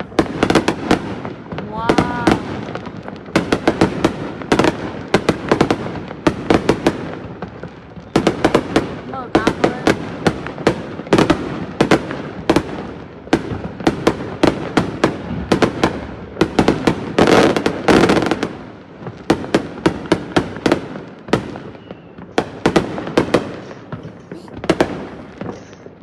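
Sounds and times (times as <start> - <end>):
fireworks banging: 0.0 - 26.0.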